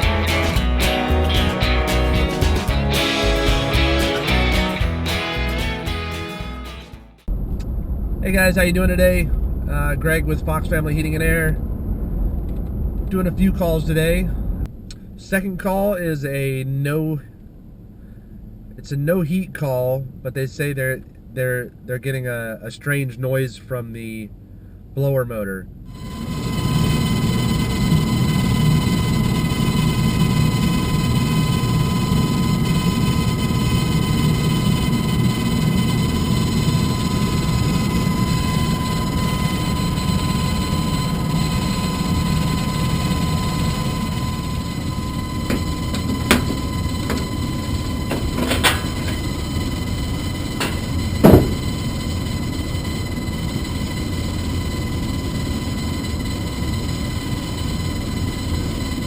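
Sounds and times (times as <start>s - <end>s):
furnace blower humming: 26.0s - 55.0s
sharp knocks: 50.6s - 51.7s.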